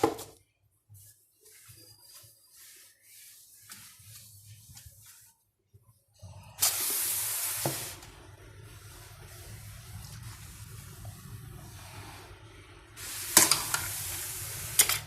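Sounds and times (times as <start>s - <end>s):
hissing spray: 6.6s - 12.3s, 13.0s - 14.9s.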